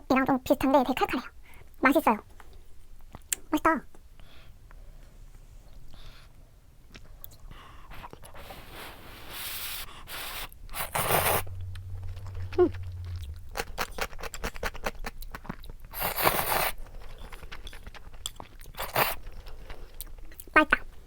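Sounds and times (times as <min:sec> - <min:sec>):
hissing slurps: 0:08.4 - 0:14.6.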